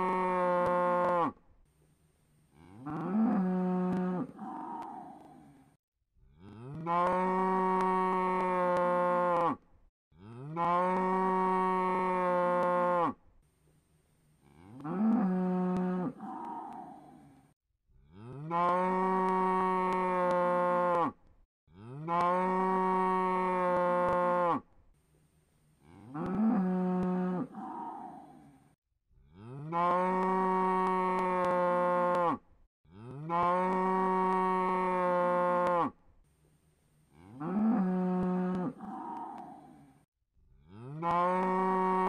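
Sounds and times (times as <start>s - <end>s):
cow mooing: 0.0s - 1.4s, 2.6s - 5.5s, 6.4s - 9.6s, 10.2s - 13.2s, 14.5s - 17.3s, 18.1s - 21.2s, 21.8s - 24.6s, 25.8s - 28.6s, 29.4s - 36.0s, 37.2s - 39.8s, 40.7s - 42.0s.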